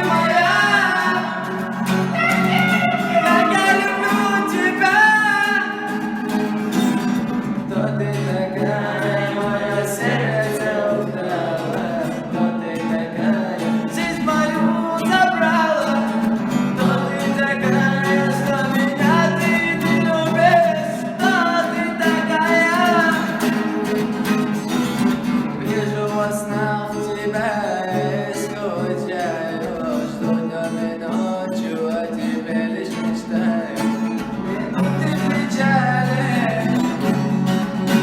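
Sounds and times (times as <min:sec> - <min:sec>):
person singing: 0:00.0 - 0:24.3, 0:25.5 - 0:38.0
acoustic guitar: 0:00.0 - 0:38.0.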